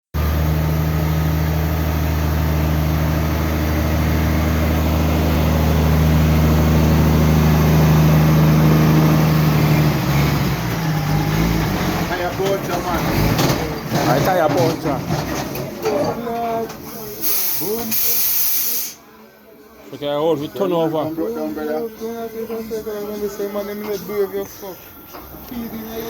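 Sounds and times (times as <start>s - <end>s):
truck engine running: 0.1s - 18.9s.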